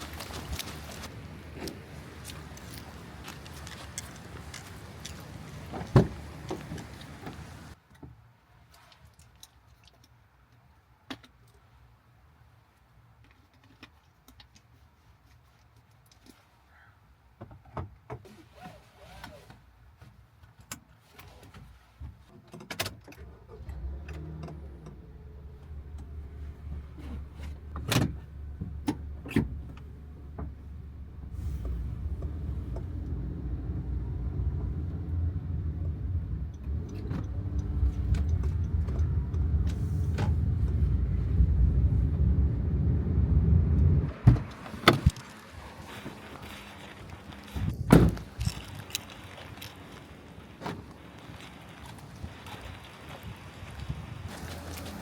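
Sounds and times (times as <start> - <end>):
light clicks and jingles: 0.0 - 7.8
low steady rumble: 24.6 - 55.0.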